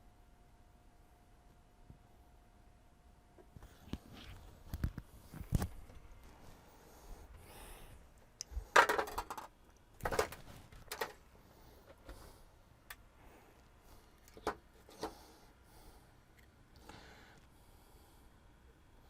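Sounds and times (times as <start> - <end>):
small hard objects clattering: 8.7 - 11.2.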